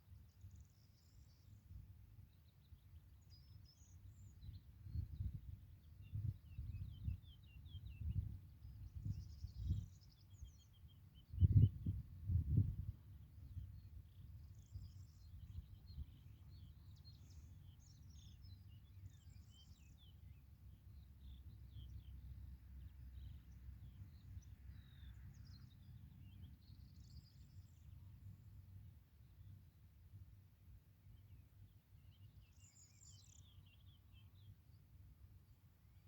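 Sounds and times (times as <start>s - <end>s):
small birds chirping and singing: 2.3s - 12.0s, 13.5s - 22.2s, 22.9s - 28.5s, 31.2s - 34.8s.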